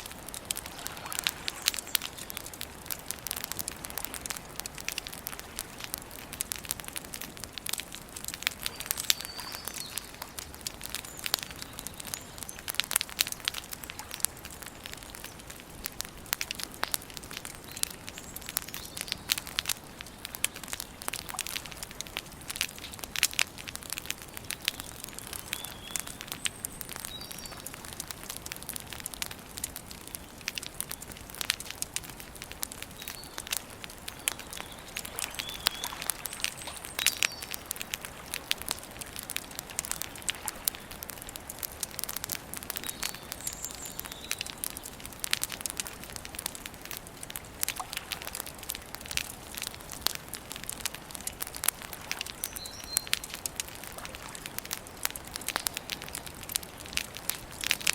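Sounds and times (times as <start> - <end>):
campfire crackling and popping: 0.0 - 57.9
faint bird chirps: 8.6 - 10.2, 34.1 - 37.7.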